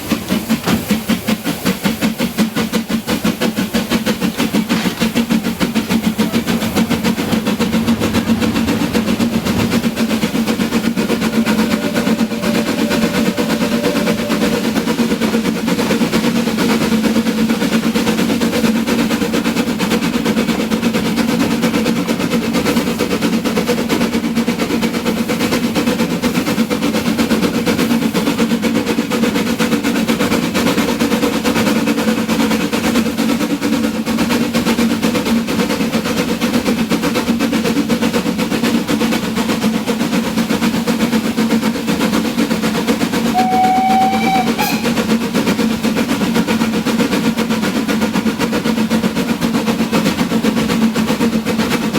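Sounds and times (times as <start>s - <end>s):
steam train clattering: 0.0s - 51.9s
brief high tone: 11.2s - 15.1s, 43.4s - 45.2s.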